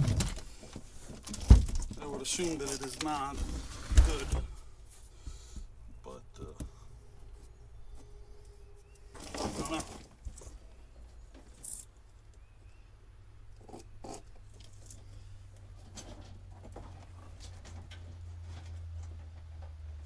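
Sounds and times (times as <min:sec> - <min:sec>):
wiring clicks and rustles: 0:00.0 - 0:05.1
steady low hum: 0:00.0 - 0:18.5.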